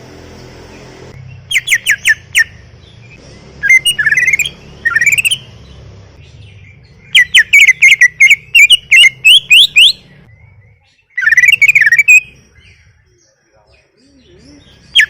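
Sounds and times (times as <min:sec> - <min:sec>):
bird whistling sharp rising notes: 0:00.7 - 0:05.6, 0:06.4 - 0:12.9
bird chattering: 0:01.2 - 0:15.0.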